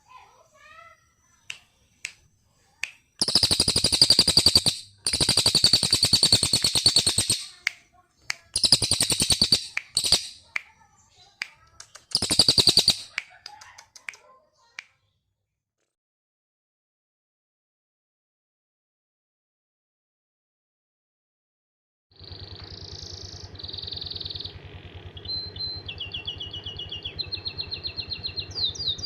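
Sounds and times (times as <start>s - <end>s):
bird chirps: 0.0s - 15.2s, 22.2s - 29.0s
songbird rattling trills: 0.5s - 7.8s, 8.4s - 14.1s.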